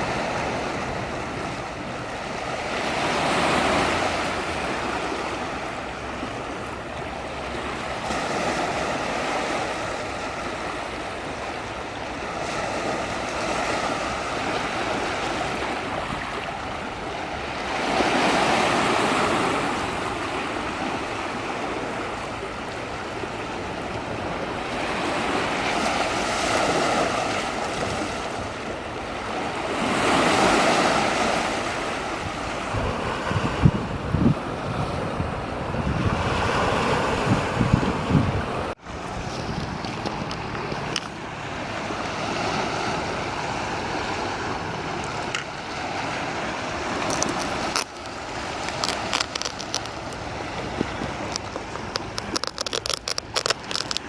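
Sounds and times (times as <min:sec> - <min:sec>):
sea waves washing onto shore: 0:00.0 - 0:54.0.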